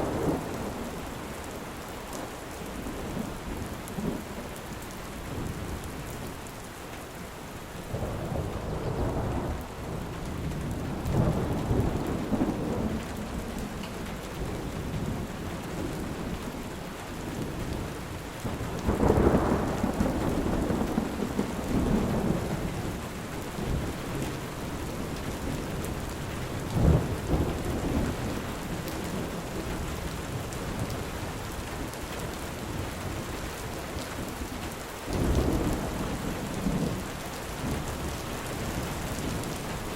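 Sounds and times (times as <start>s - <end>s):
thunder rumbling: 0.0s - 1.2s, 7.8s - 16.4s, 18.4s - 31.6s
steady rain falling: 0.0s - 39.9s.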